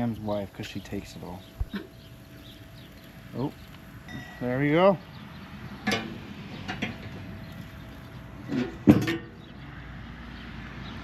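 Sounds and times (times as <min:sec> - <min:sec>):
steady background hiss: 0:00.0 - 0:06.1
metallic clatter at grill: 0:00.0 - 0:09.6.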